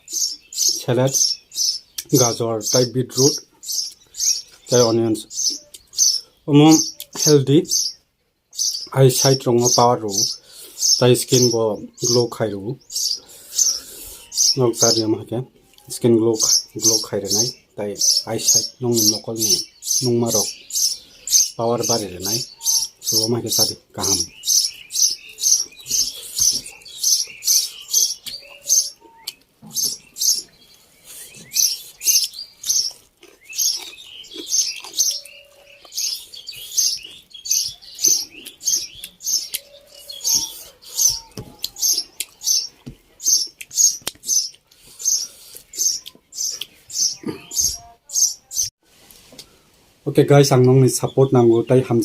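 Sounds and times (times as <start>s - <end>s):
close-up chewing of food: 30.4s - 46.8s.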